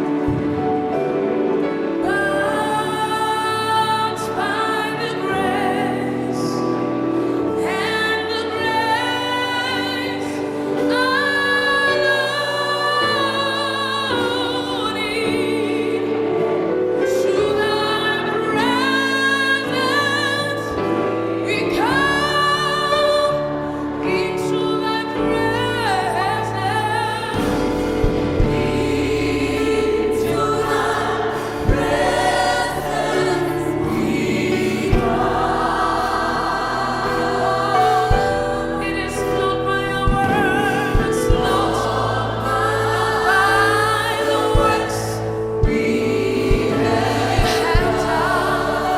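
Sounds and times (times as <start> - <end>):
gospel choir singing: 0.0 - 48.9
sharp drum hits: 27.4 - 34.0.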